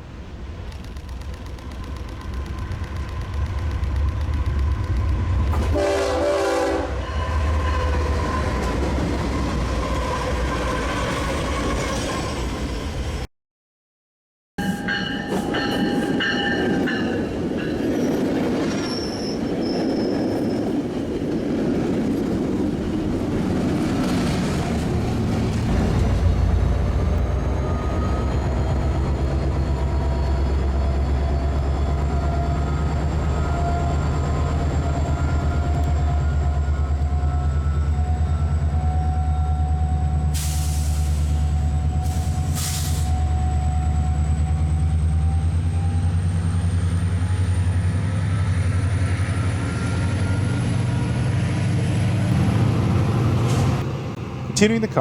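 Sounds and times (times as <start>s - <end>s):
train wheels rumbling and squealing: 0.6s - 13.3s, 14.6s - 55.0s
locomotive engine drone: 21.9s - 55.0s.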